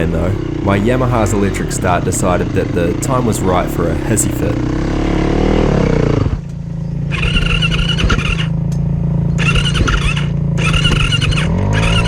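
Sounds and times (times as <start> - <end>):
engine hum: 0.0 - 12.0
electric starter squealing: 6.9 - 12.0.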